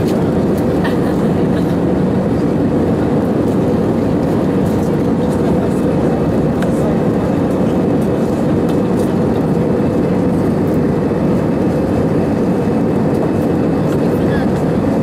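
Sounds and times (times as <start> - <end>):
aircraft cabin engine drone: 0.0 - 15.0.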